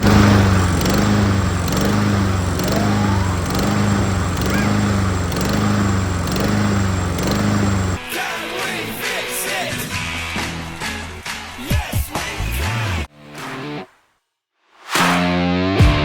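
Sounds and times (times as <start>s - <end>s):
lawn mower engine surging: 0.0s - 8.0s, 13.2s - 13.8s.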